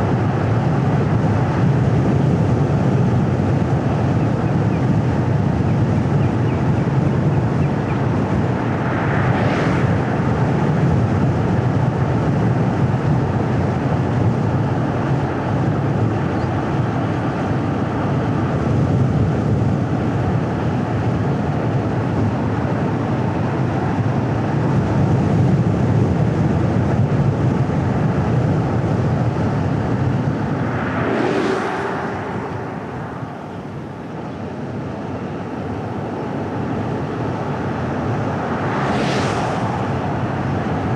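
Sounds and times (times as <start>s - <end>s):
road and tyre rumble: 0.0s - 40.9s.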